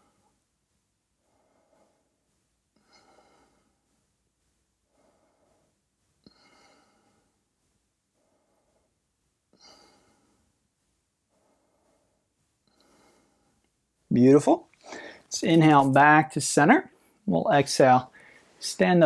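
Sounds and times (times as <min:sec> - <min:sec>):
slow breathing close to microphone: 0:00.0 - 0:00.4, 0:01.2 - 0:04.2, 0:04.8 - 0:13.8, 0:14.8 - 0:15.3, 0:18.1 - 0:18.6.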